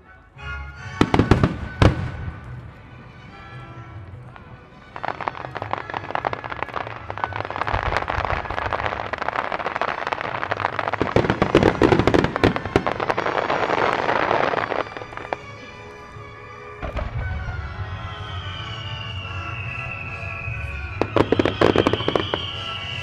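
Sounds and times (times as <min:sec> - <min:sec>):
music playing: 0:00.0 - 0:23.0
fireworks bursting and crackling: 0:01.0 - 0:23.0.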